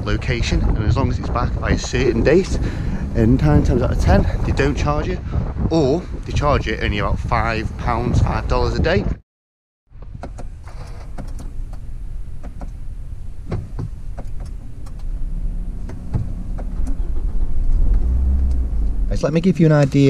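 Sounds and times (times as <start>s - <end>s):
engine running with low rumble: 0.0s - 8.7s, 9.9s - 20.0s.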